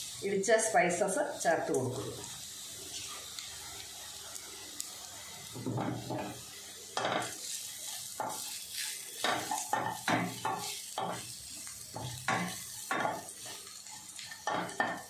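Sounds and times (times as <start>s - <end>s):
onions sizzling in ghee: 0.0s - 15.0s.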